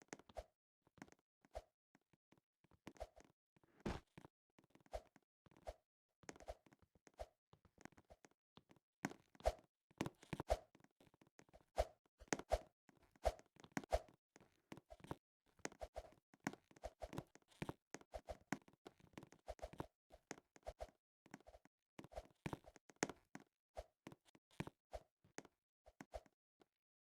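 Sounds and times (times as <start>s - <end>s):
short rapid taps: 3.8s - 4.0s.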